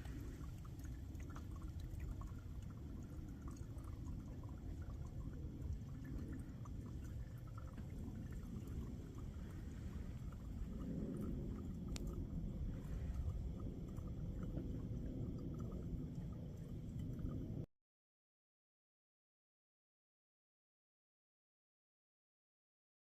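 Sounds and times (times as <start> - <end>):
low steady rumble: 0.0 - 17.7
rain dripping and pattering: 0.0 - 17.7.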